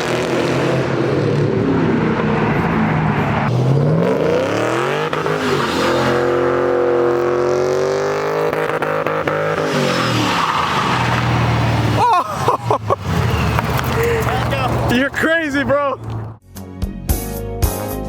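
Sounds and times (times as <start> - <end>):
car engine revving: 0.0 - 16.4.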